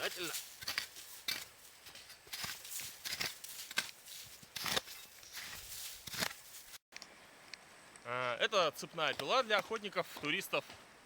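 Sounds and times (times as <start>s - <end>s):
shovel scraping snow: 0.0s - 6.8s.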